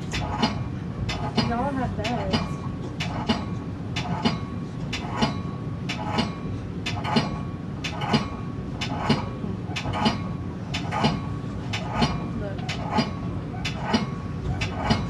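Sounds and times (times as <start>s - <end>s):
train rumble: 0.0s - 15.0s
train wheels clicking on rail joints: 0.0s - 15.0s.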